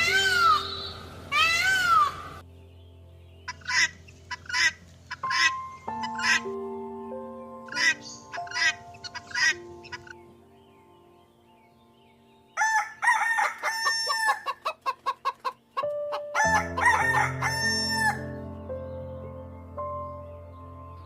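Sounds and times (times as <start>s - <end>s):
background music: 0.0s - 21.0s
rooster crowing: 12.6s - 14.7s, 16.3s - 18.4s
rooster clucking: 13.4s - 17.6s.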